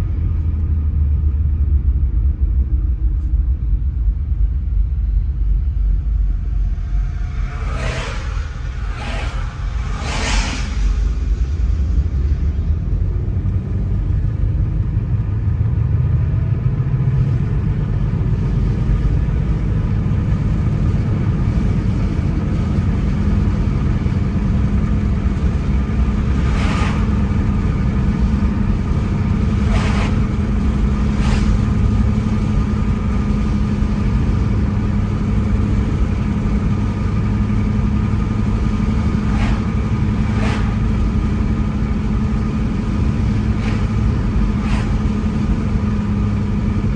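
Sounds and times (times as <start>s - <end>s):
car engine hum: 0.0s - 46.9s
tyre and road noise: 6.4s - 11.6s, 16.4s - 46.9s.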